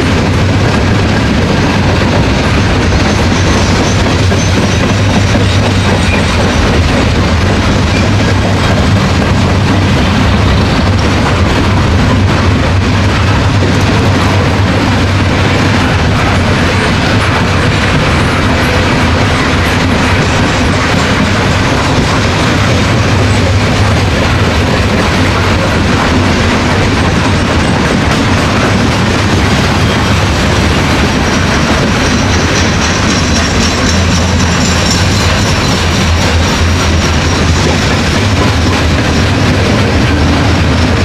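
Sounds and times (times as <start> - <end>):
freight train wheels rolling: 0.0 - 41.0.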